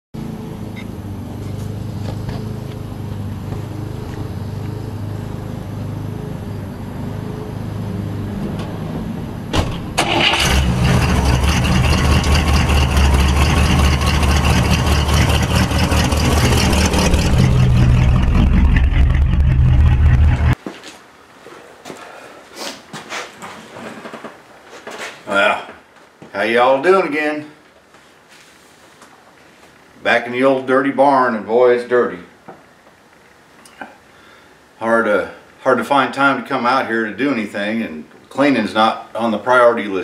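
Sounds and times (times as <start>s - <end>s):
motor vehicle engine running: 0.2s - 20.6s.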